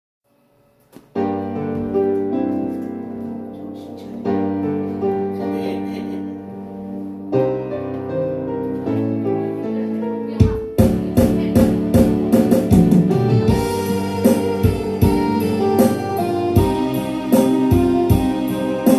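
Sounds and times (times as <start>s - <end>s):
electronic keyboard chords and melody: 1.0s - 18.9s
drum hit: 10.4s - 18.9s.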